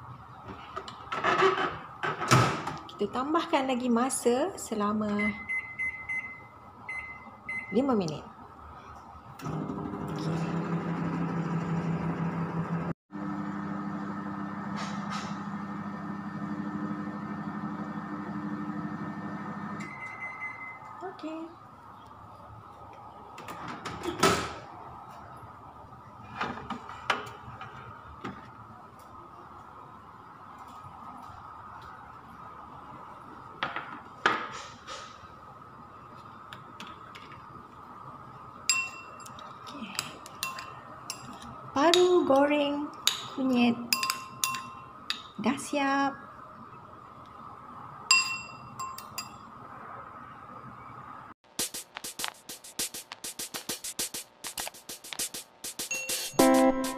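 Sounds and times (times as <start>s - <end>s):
microwave oven humming: 9.4s - 20.9s.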